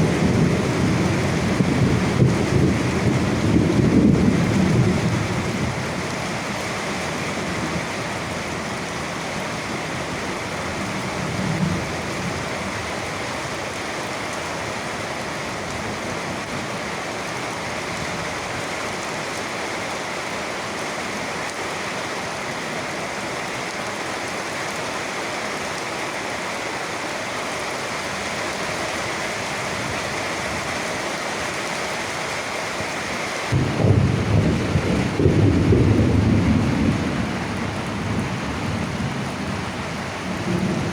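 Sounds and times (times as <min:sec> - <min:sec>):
thunder rumbling: 0:00.0 - 0:06.1, 0:33.5 - 0:40.9
rain falling: 0:00.0 - 0:40.9.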